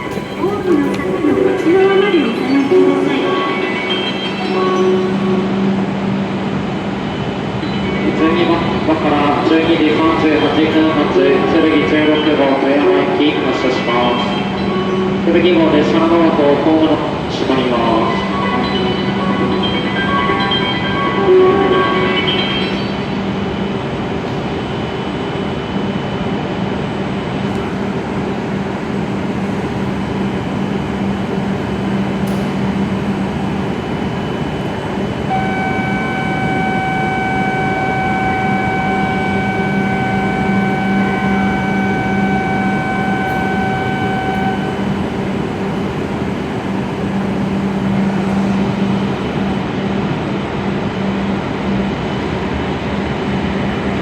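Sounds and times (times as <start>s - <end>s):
steady high tone: 0.0s - 13.4s, 27.7s - 49.7s
train running rumble: 0.0s - 21.1s, 22.7s - 54.0s.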